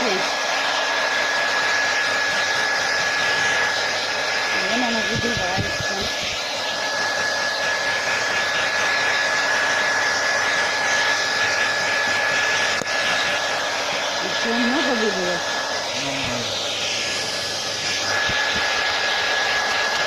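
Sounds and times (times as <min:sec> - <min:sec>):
high fan whine: 0:00.0 - 0:20.0.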